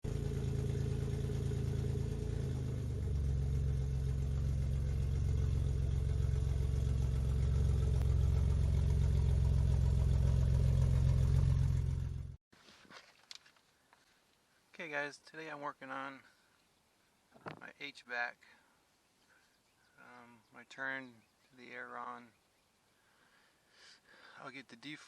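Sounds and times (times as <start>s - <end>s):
car engine running: 0.0s - 12.4s.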